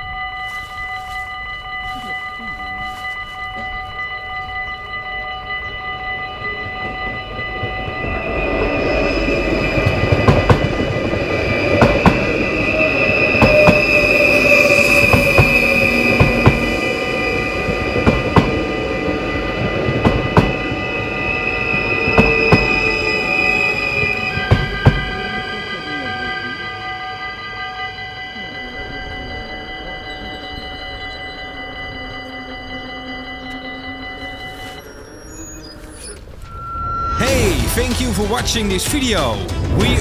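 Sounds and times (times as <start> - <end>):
high steady train whine: 0.0 - 40.0
level crossing bells ringing: 0.0 - 40.0
train wheels rumbling on rail: 6.2 - 27.6.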